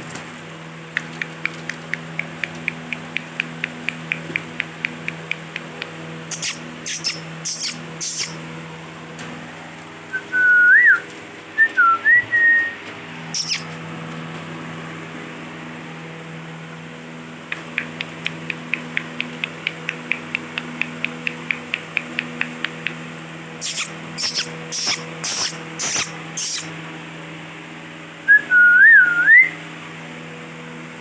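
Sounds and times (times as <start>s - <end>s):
low electrical hum: 0.0s - 31.0s
parakeets chirping: 1.1s - 8.4s, 13.3s - 13.8s, 17.5s - 23.0s, 23.6s - 26.7s
shrill parakeet calls: 6.3s - 8.4s, 13.3s - 13.8s, 23.6s - 26.7s.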